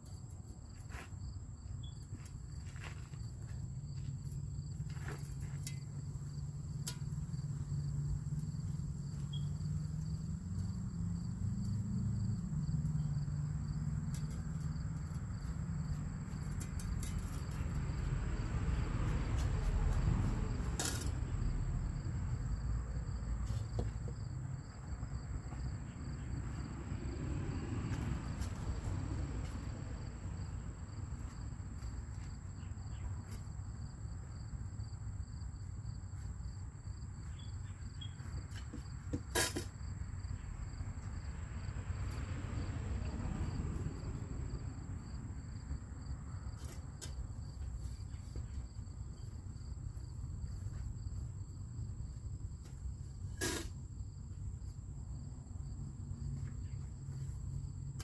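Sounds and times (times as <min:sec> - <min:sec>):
crickets trilling: 0:00.0 - 0:58.0
pulsing insect trill: 0:05.5 - 0:15.4.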